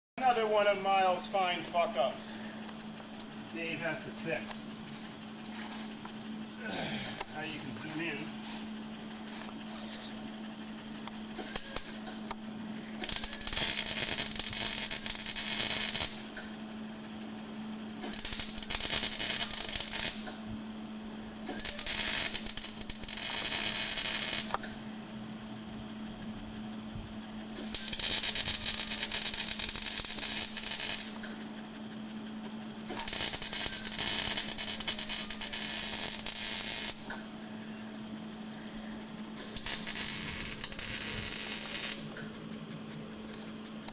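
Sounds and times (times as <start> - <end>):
steady hum: 0.2 - 43.9
welding arc: 11.1 - 16.6, 17.9 - 20.5, 21.3 - 24.8, 27.5 - 31.4, 32.8 - 37.2, 39.4 - 42.3.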